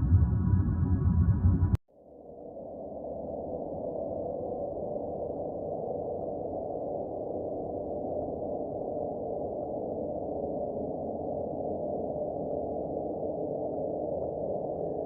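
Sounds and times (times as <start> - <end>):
dull rushing drone: 0.0 - 1.8.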